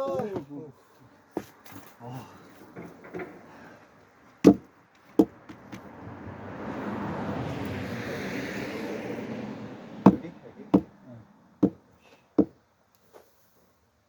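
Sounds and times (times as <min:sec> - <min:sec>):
axe knocking into log: 0:04.4 - 0:05.4, 0:10.1 - 0:10.9.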